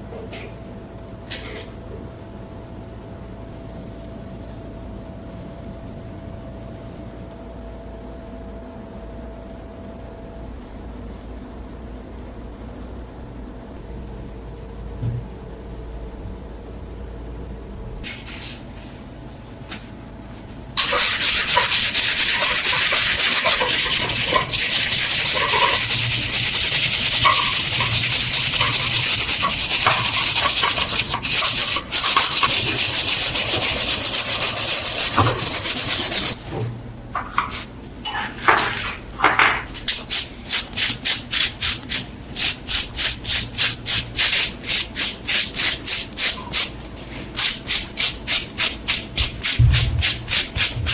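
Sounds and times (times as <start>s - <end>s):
steady loud hiss: 10.0s - 50.9s
hand sanding metal: 20.8s - 36.4s, 39.8s - 50.9s.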